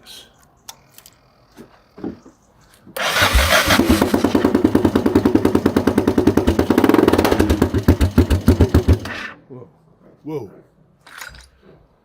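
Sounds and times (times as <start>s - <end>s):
motorcycle engine starting and running: 3.0s - 9.4s.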